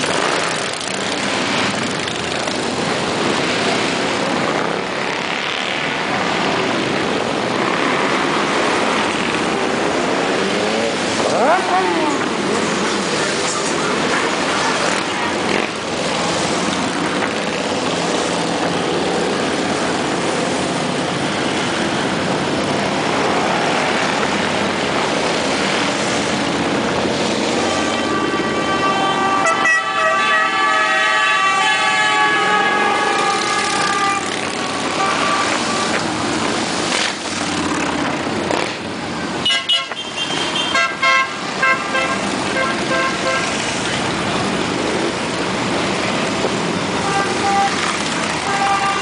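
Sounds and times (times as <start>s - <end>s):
motorcycle engines passing: 0.0s - 49.0s
vehicle horn: 27.6s - 36.0s, 39.4s - 43.6s, 47.0s - 47.8s, 48.4s - 49.0s.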